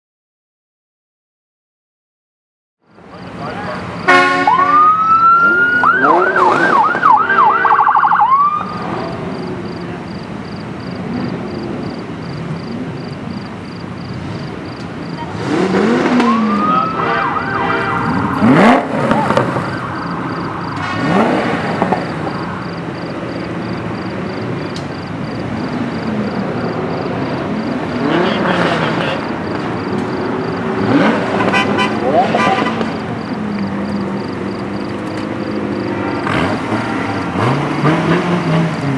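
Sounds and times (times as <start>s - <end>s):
engines revving: 2.9s - 38.9s
police car siren: 3.1s - 10.2s, 15.2s - 35.8s.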